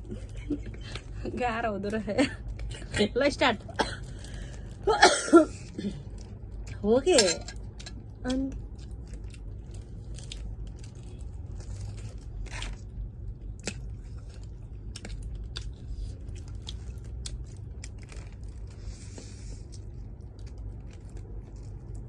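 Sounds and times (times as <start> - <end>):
chewing and biting food: 7.6 - 22.0.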